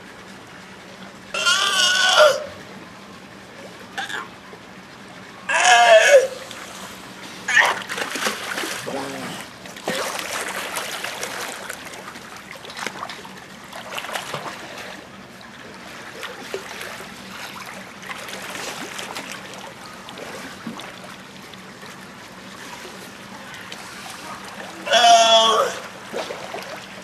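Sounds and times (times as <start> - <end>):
small water splashes: 7.5 - 27.0.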